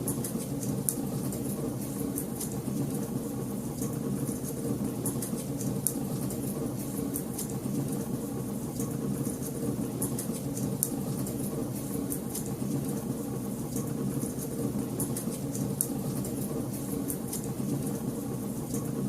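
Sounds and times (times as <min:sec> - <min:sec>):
fire crackling in fireplace: 0:00.0 - 0:19.0.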